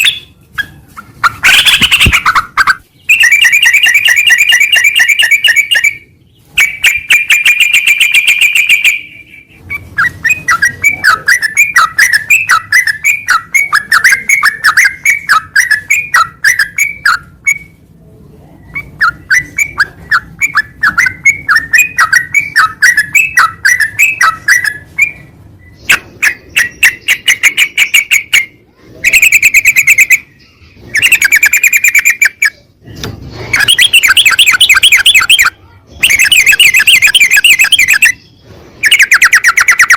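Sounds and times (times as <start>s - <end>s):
bird rattling trills and chirps: 0.0s - 9.0s, 18.7s - 32.6s, 33.4s - 39.9s.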